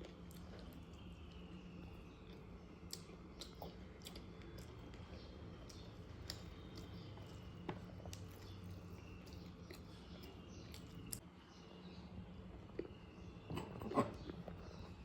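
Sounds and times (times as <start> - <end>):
person chewing food: 0.0 - 11.2.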